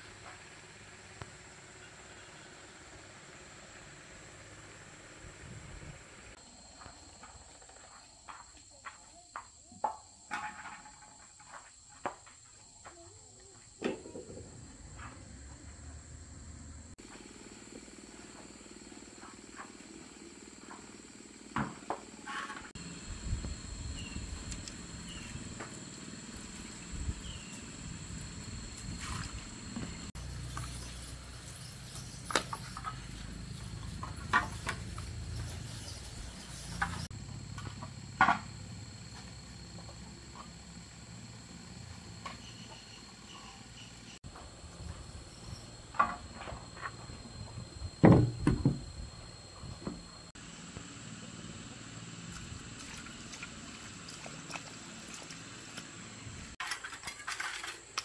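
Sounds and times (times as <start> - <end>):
sharp knocks: 48.0 - 48.8.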